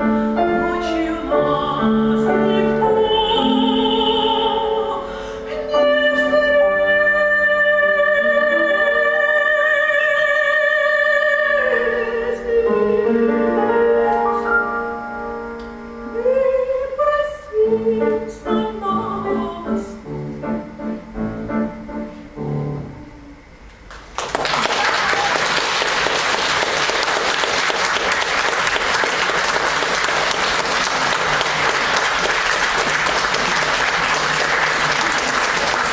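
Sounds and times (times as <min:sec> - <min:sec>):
piano playing: 0:00.0 - 0:10.3, 0:11.4 - 0:23.7
woman singing with vibrato: 0:00.0 - 0:14.2, 0:16.1 - 0:20.1
audience applause: 0:24.0 - 0:35.9.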